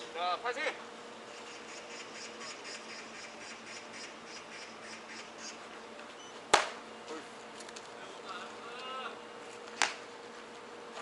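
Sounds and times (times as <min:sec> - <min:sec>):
faint pulsing insect buzz: 0:01.3 - 0:05.6
baseball smack: 0:06.5 - 0:06.8, 0:09.8 - 0:10.0.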